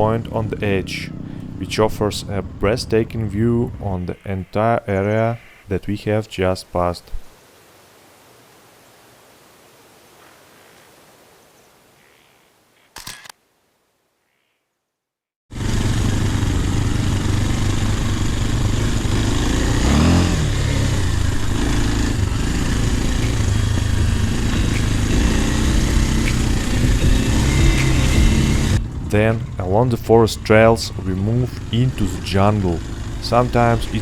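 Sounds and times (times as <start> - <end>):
motorcycle engine revving: 0.0 - 5.6, 15.5 - 34.0.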